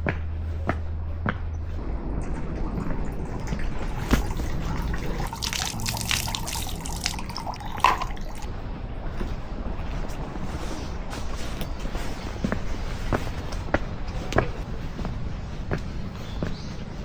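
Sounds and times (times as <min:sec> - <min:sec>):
water dripping and splashing: 0:02.2 - 0:08.5.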